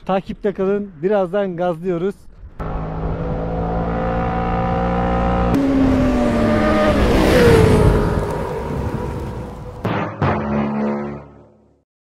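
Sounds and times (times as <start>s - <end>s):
motorcycle engine running: 2.6s - 7.3s
motorcycle passing by: 2.6s - 9.8s.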